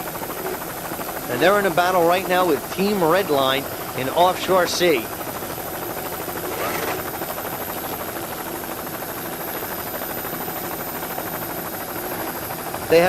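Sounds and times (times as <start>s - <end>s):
engine drone: 0.0s - 8.8s.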